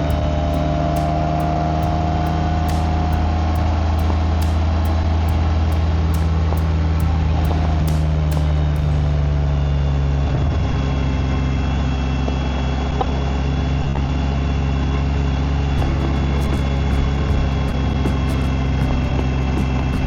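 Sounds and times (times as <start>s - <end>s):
faint regular ticking: 0.0s - 9.1s
motorcycle engine running: 0.0s - 10.2s, 15.7s - 20.0s.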